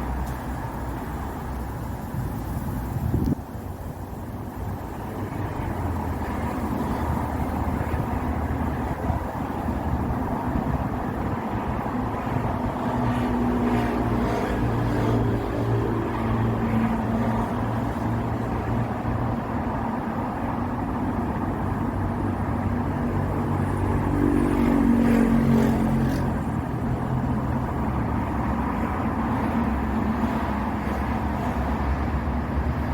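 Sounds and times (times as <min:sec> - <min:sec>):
wind rushing through bamboo: 0:00.0 - 0:32.9.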